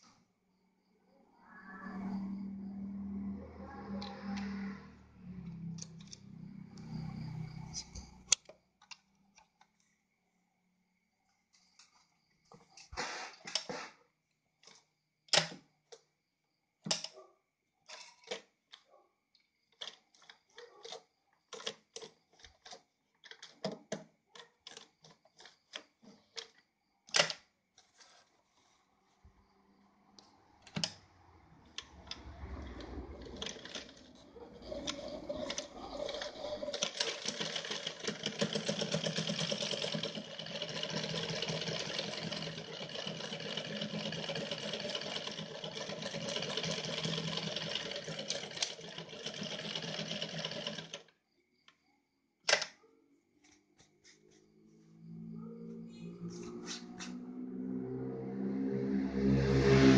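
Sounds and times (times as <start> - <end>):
sewing machine parts clicking: 17.8 - 18.9, 19.7 - 28.2, 31.8 - 51.2
sewing machine running: 32.1 - 51.1.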